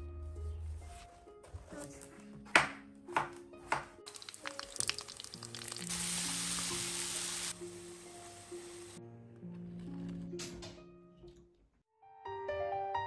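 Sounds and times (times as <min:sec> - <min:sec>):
soft background music: 0:00.0 - 0:13.0
knife chopping on wooden board: 0:02.5 - 0:04.0
vegetables sizzling in oil: 0:04.1 - 0:09.0.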